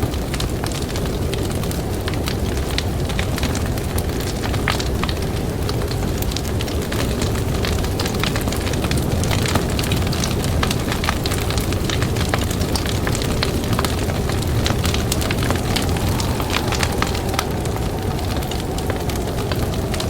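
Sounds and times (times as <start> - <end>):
campfire crackling and popping: 0.1 - 20.0
fire low roar: 8.4 - 20.0.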